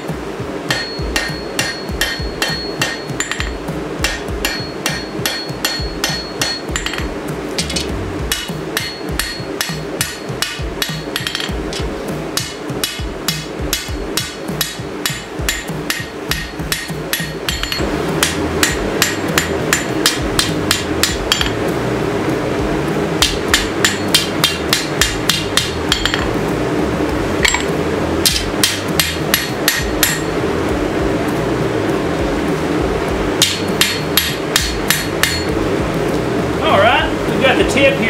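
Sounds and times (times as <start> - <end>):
steady low hum: 0.0 - 38.0
hammer ringing on anvil: 0.7 - 11.6, 12.4 - 21.6, 23.2 - 26.3, 27.5 - 30.3, 33.4 - 35.5.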